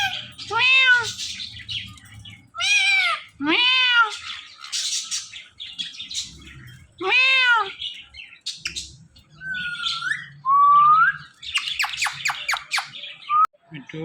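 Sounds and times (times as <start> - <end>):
parrot imitating a cat's meow: 0.0 - 1.2, 2.6 - 4.3, 7.0 - 7.8.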